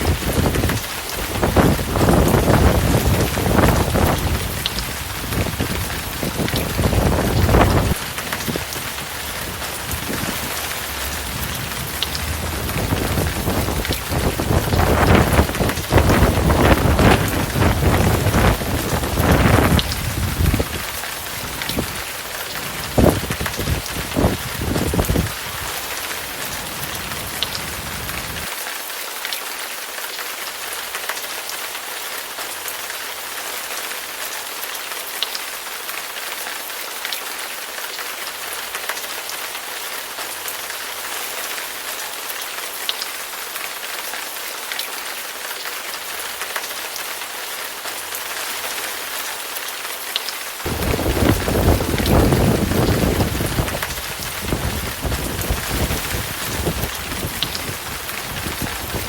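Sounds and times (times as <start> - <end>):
thunder rumbling: 0.0 - 22.0, 50.7 - 59.0
heavy rain hissing: 0.0 - 28.6, 37.2 - 59.0.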